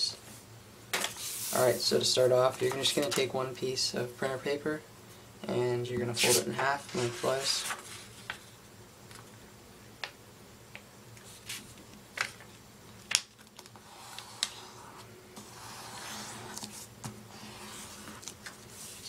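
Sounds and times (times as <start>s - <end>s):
paper rustling rub: 1.1s - 1.8s, 6.2s - 8.6s, 13.6s - 19.0s
paper crackling: 6.2s - 8.5s.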